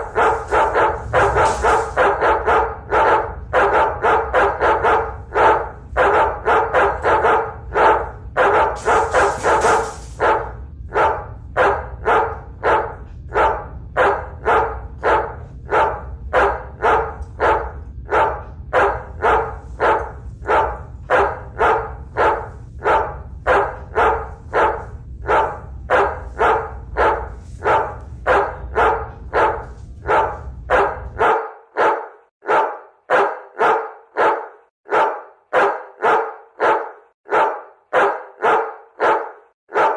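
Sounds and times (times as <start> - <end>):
low hum: 0.0 - 31.2
toy dog barking: 30.7 - 39.9.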